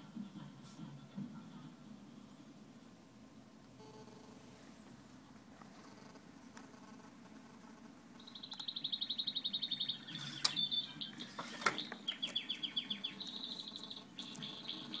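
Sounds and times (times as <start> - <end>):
songbird trilling: 8.2 - 15.0.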